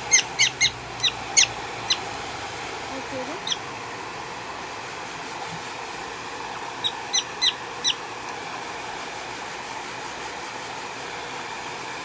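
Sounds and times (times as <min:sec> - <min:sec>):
prairie dog chirps: 0:00.0 - 0:02.2, 0:03.3 - 0:03.7, 0:06.7 - 0:08.0.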